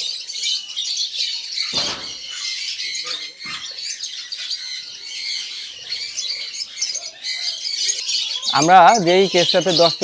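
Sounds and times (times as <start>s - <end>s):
birds chirping and squawking: 0.0s - 10.0s
dull thump: 1.8s - 2.2s.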